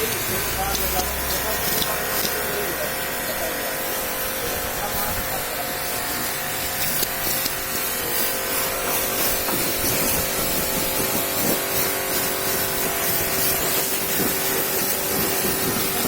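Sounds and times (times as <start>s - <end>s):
pressure washer motor hum: 0.0s - 16.0s
pressure washer water spray: 0.0s - 16.0s.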